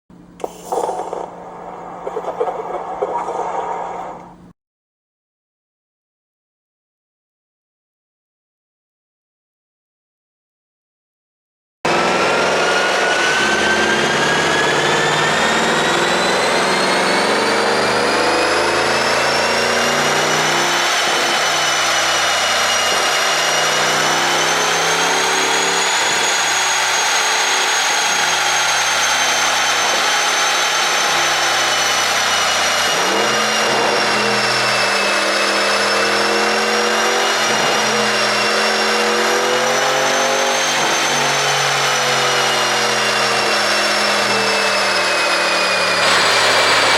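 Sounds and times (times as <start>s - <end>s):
high whine: 0.2s - 4.5s.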